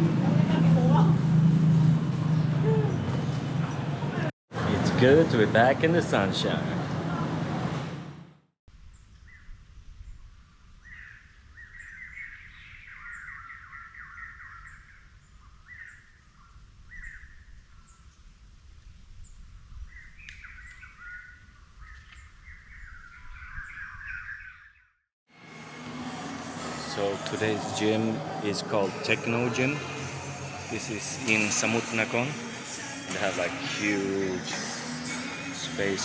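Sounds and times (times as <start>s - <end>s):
small birds chirping: 9.0s - 18.3s, 19.2s - 24.9s.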